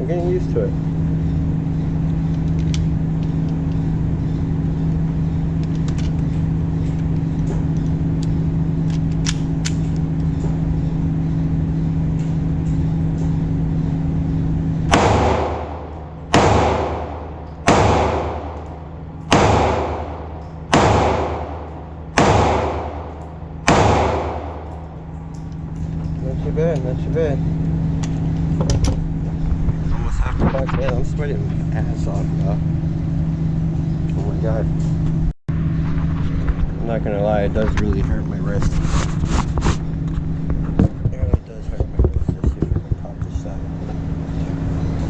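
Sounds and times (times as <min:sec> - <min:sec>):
steady mechanical hum: 0:00.0 - 0:45.0
pistol shots with echo: 0:14.9 - 0:25.2.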